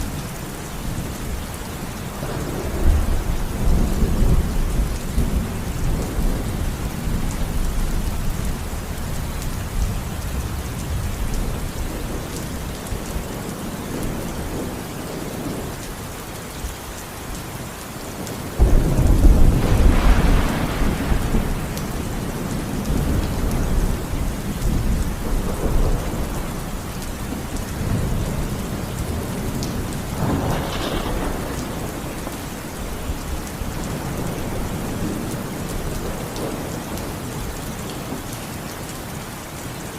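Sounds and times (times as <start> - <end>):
steady rain: 0.0 - 39.9
rolling thunder: 2.1 - 15.6, 18.2 - 37.2
loud thunderclap: 18.6 - 26.6, 27.8 - 35.3.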